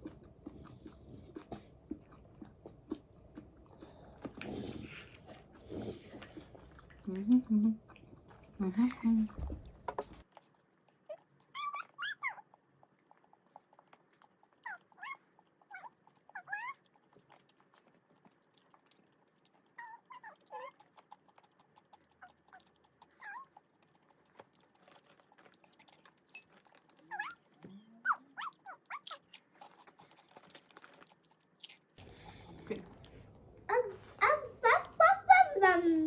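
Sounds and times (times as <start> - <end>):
dog whining: 11.1 - 12.4, 14.6 - 16.8, 22.5 - 23.6.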